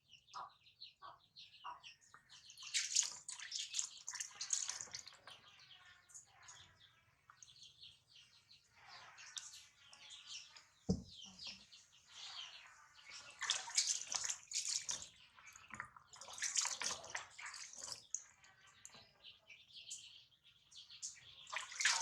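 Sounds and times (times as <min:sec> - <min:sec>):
water splashing in a tub: 0:02.2 - 0:07.4, 0:12.2 - 0:18.9, 0:21.4 - 0:22.0
dull knock: 0:10.9 - 0:11.2.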